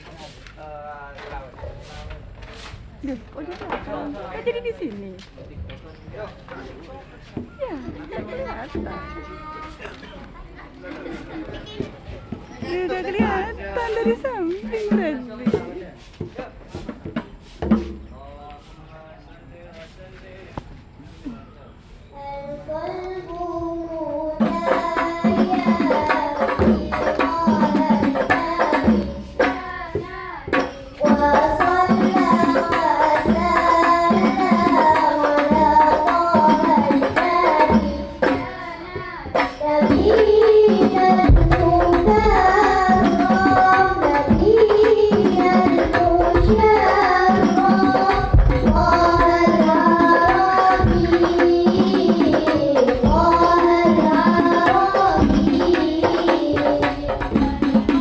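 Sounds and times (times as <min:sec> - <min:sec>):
hand drums and percussion: 0:01.2 - 0:18.8, 0:24.3 - 0:58.0
person singing: 0:22.2 - 0:58.0.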